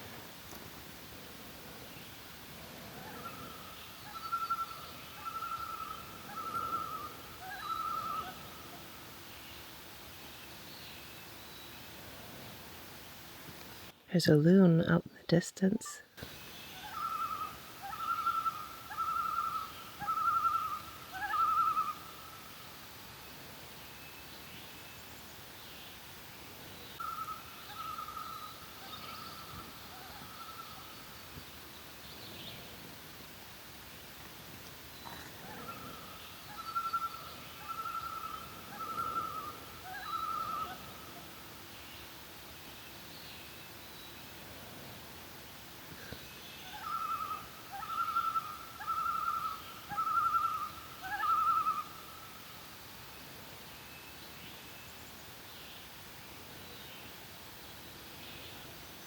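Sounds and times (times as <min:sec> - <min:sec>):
songbirds chirping faintly: 0:00.0 - 0:59.0
loon tremolo call: 0:03.0 - 0:08.8, 0:16.8 - 0:22.1, 0:35.4 - 0:41.3, 0:46.7 - 0:52.1.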